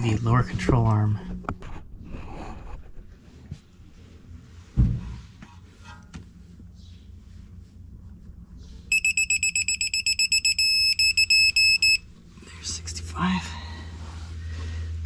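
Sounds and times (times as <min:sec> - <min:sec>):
dull thump: 0:04.7 - 0:05.2
torque wrench beeping: 0:08.9 - 0:12.0.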